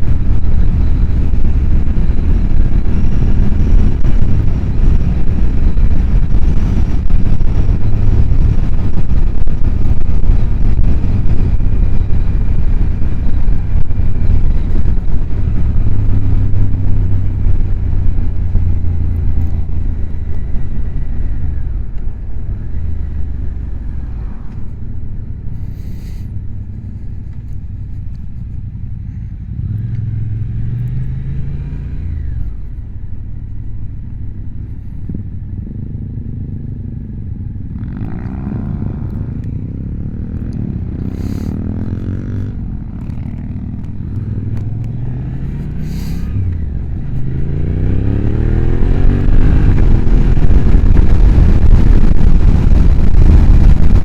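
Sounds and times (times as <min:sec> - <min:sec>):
motorcycle engine revving: 0:00.0 - 0:54.0
wind noise: 0:00.0 - 0:54.0.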